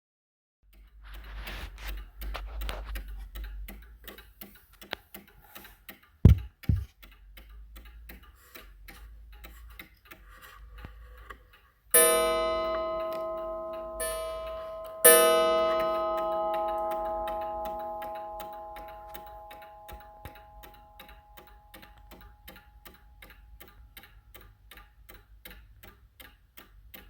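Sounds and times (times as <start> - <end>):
clock ticking: 0.7 - 27.0
dull thumps: 6.3 - 6.9
clock chime strike: 12.0 - 21.7.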